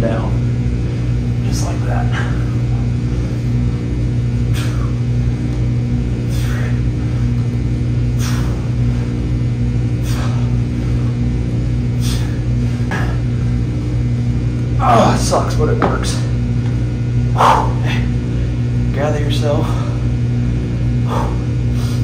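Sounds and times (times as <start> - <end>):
loud steady machine hum: 0.0 - 22.0
person exhaling with a hiss: 4.5 - 5.0, 6.2 - 6.8, 8.2 - 8.8.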